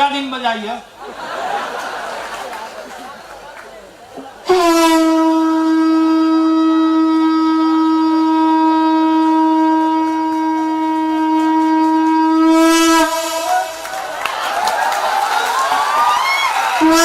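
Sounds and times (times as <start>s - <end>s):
conch shell blown: 4.5s - 14.1s, 16.8s - 17.0s.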